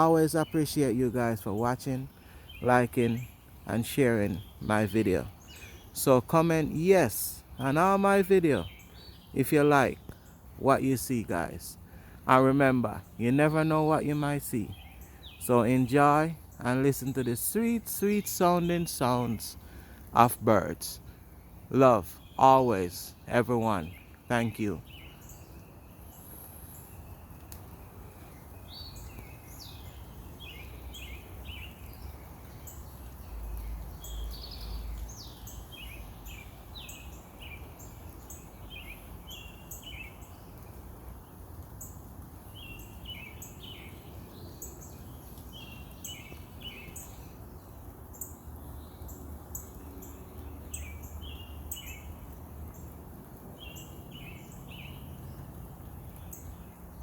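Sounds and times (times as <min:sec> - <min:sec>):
birds chirping: 0:00.0 - 0:57.0
steady background hiss: 0:00.0 - 0:57.0.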